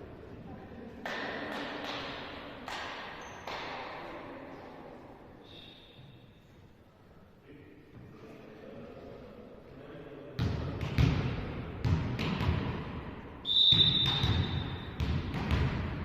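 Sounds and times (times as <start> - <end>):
hands hitting volleyball: 1.0 - 4.0.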